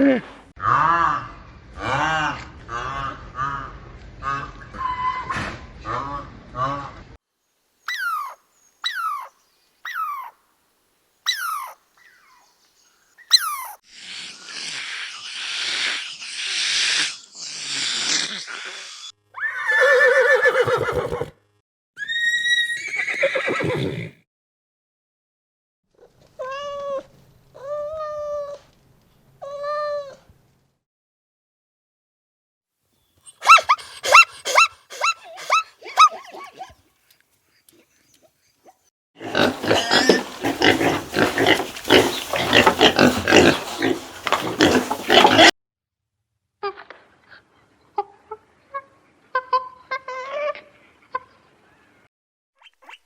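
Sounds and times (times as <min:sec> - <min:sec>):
animal cries: 0:07.9 - 0:09.3, 0:09.9 - 0:10.4, 0:11.3 - 0:12.4, 0:17.7 - 0:21.3, 0:39.2 - 0:45.5
animal squeaks: 0:07.9 - 0:09.3, 0:09.9 - 0:10.3, 0:11.3 - 0:12.4, 0:13.2 - 0:13.8
short even-pitched animal calls: 0:07.9 - 0:09.3
animal snorting: 0:39.2 - 0:45.5.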